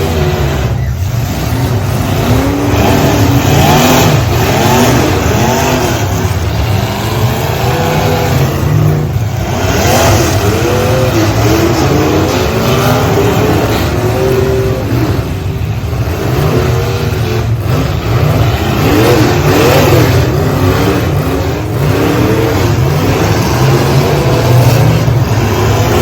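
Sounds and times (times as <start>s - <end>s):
low engine rumble: 0.0s - 26.0s
truck engines revving: 0.0s - 26.0s.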